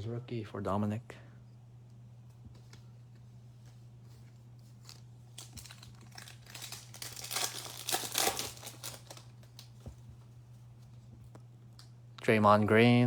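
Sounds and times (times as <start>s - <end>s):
foil wrapper tearing and crinkling: 4.7s - 9.8s.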